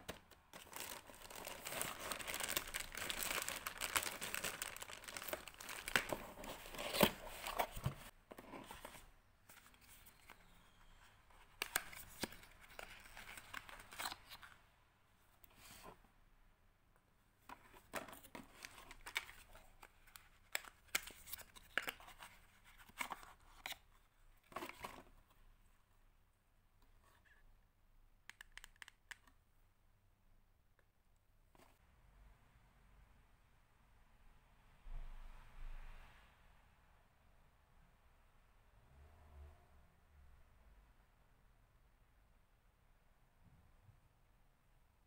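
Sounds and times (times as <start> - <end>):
packaging crinkling and tearing: 0.0 - 7.8.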